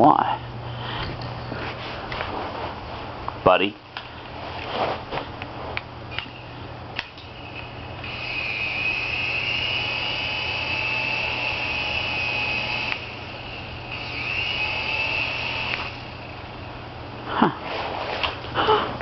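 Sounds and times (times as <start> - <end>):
toy helicopter rotor motors whining: 7.4 - 16.4.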